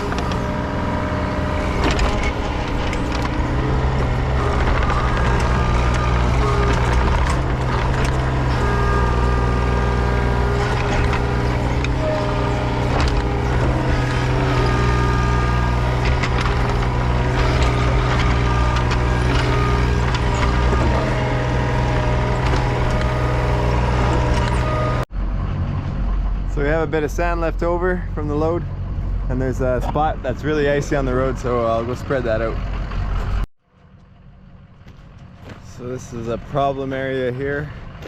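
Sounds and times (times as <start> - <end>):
knocks and scrapes: 0.0 - 25.0
whining hydraulics: 0.0 - 25.1
diesel engine under load: 0.0 - 38.0.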